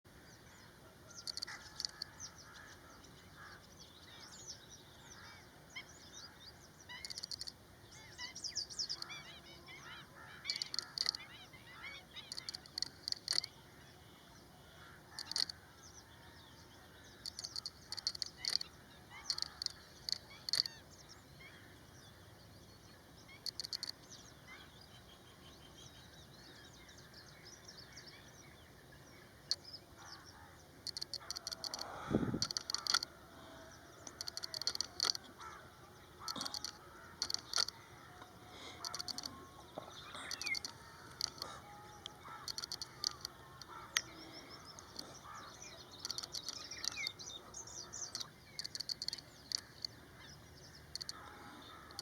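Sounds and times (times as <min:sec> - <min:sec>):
steady outdoor hiss: 0:00.1 - 0:52.0
birds calling sharp high notes: 0:34.0 - 0:50.0.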